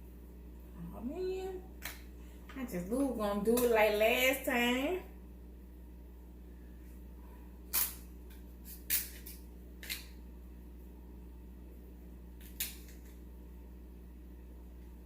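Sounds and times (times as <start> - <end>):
faint low hum: 0.0 - 15.0
crab shell cracking: 12.4 - 13.2.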